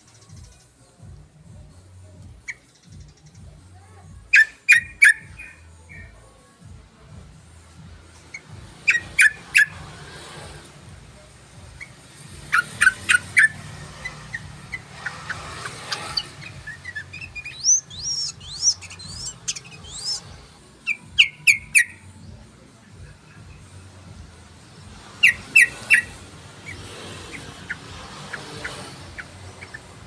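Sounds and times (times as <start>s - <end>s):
bird sharp chirps: 8.2s - 10.3s, 11.8s - 22.1s, 25.0s - 30.0s
bird rising whistled notes: 16.2s - 20.2s.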